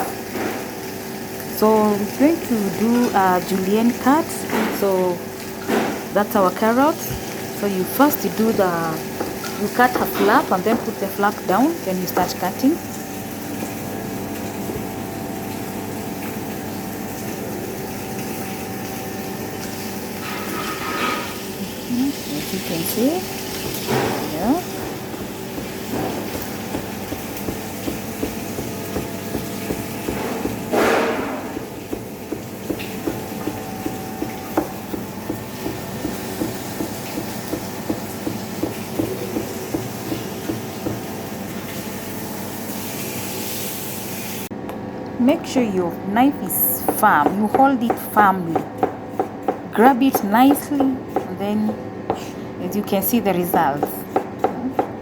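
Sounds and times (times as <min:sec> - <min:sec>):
mechanical hum with held tones: 0:00.0 - 0:55.0
knife chopping on board: 0:23.2 - 0:41.1, 0:46.9 - 0:52.3, 0:53.8 - 0:55.0.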